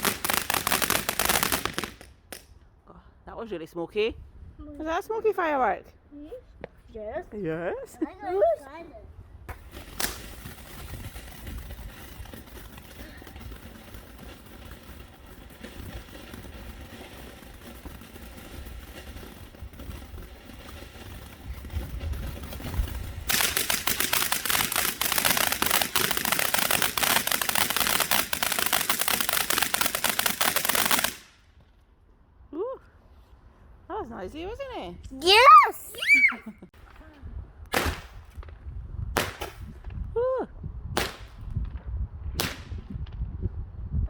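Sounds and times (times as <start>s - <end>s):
firework hissing: 0.0s - 2.1s, 9.5s - 31.4s
firework rapid crackling: 0.0s - 2.5s, 9.5s - 31.4s.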